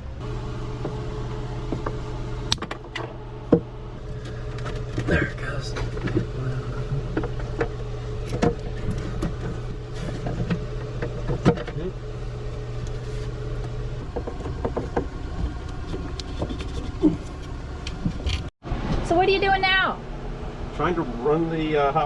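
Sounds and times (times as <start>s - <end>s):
pump motor humming: 0.0s - 18.5s
knocks and clatter: 1.7s - 12.0s, 13.6s - 18.5s.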